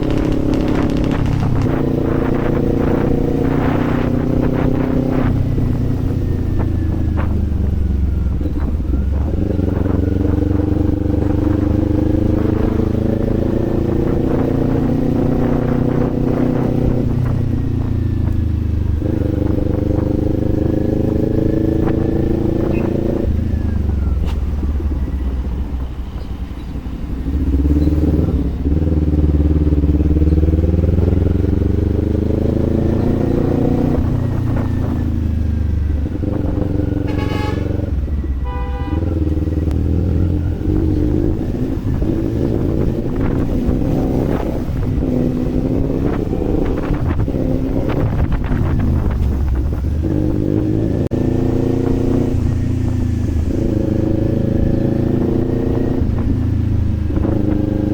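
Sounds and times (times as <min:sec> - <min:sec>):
motorcycle engine revving: 0:00.0 - 0:17.9
horn honking: 0:37.0 - 0:39.4.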